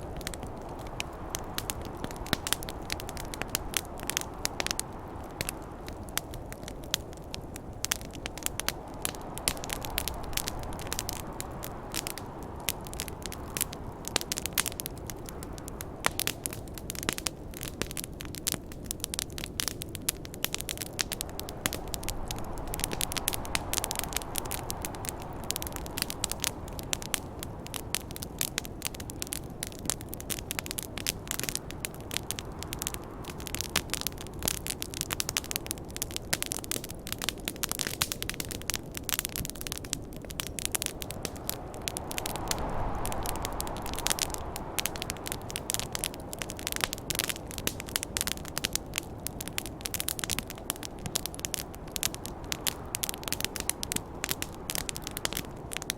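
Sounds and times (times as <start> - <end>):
snowstorm wind rushing: 0.0 - 17.1, 19.7 - 28.0, 39.5 - 48.6
campfire crackling and popping: 0.0 - 55.9.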